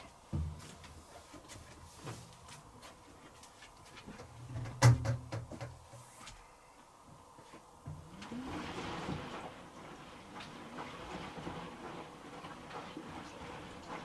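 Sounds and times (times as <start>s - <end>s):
washer drum thuds and clicks: 0.3s - 1.0s, 4.2s - 6.0s.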